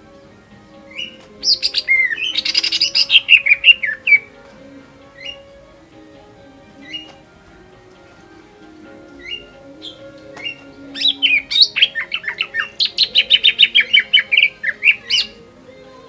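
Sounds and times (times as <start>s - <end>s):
bird singing sharp notes: 0.8s - 4.4s, 6.8s - 7.3s, 9.0s - 15.5s.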